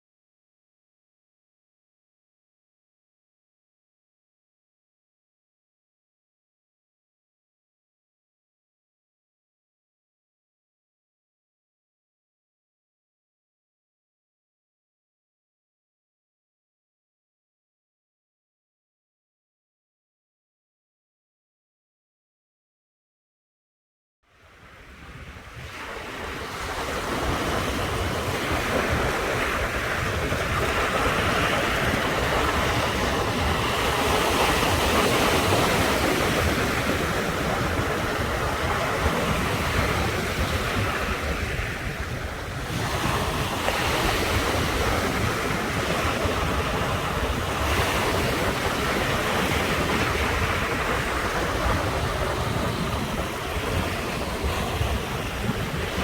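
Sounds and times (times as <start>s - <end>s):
ocean surf waves: 24.4s - 56.0s.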